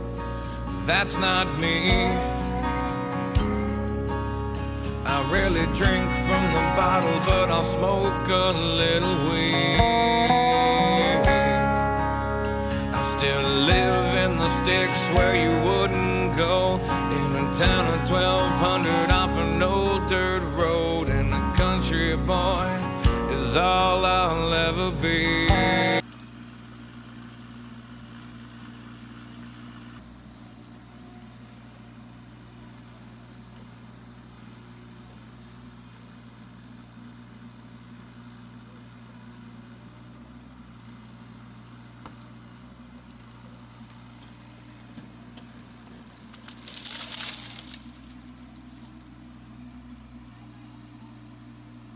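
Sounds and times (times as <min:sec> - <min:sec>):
country song: 0:00.0 - 0:26.0
excavator engine running: 0:00.0 - 0:51.9
noisy crackle: 0:43.0 - 0:49.8.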